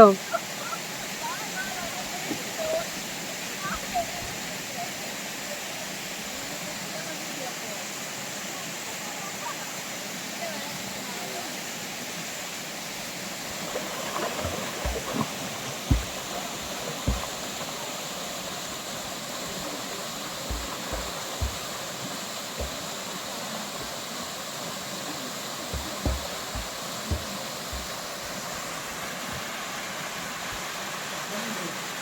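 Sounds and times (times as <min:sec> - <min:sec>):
waterfall rushing: 0:00.0 - 0:32.0
short low thumps: 0:15.9 - 0:17.6, 0:20.4 - 0:22.0, 0:22.6 - 0:23.1, 0:25.7 - 0:28.5.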